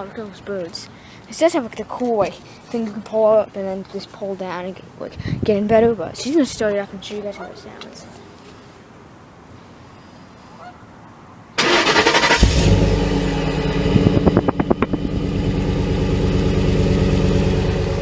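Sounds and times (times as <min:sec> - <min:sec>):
engine starter cranking: 0:11.6 - 0:15.0
truck engine idling: 0:11.6 - 0:18.0.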